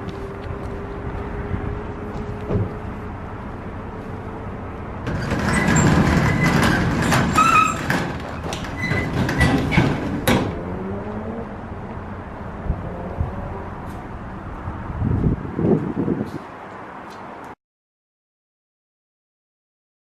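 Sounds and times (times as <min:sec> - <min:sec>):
metal exhaust clattering: 0:05.0 - 0:10.8.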